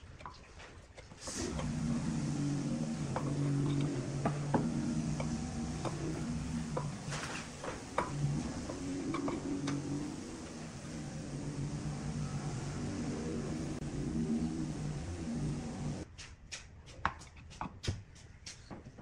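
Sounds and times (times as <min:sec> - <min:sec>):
wood lathe motor humming: 0:01.2 - 0:16.0.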